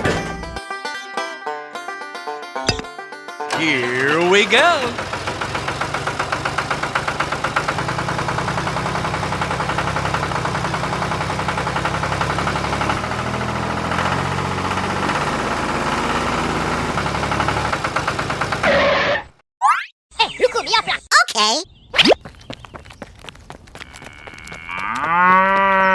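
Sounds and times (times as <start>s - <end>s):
small tractor engine chugging: 3.5s - 18.7s.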